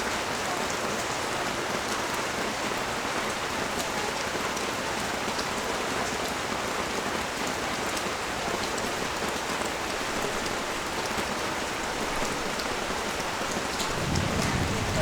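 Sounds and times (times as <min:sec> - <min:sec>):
heavy rain hissing: 0:09.7 - 0:15.0
raindrop ticks: 0:10.3 - 0:15.0.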